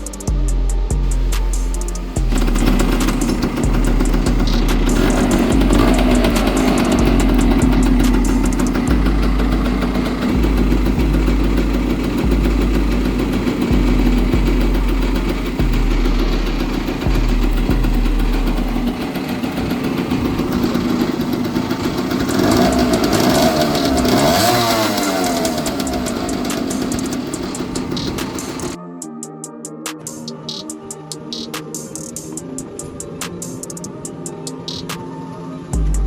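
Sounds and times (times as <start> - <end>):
motorcycle engine running: 0.0 - 28.8.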